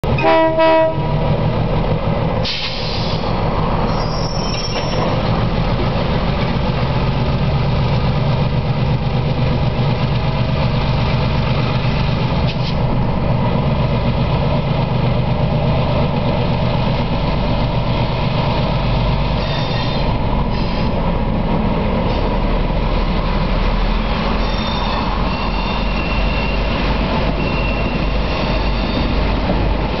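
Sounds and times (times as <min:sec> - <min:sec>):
diesel locomotives rumbling: 0:00.0 - 0:30.0
wheel squeals: 0:03.9 - 0:05.2, 0:19.4 - 0:20.9, 0:24.3 - 0:29.5.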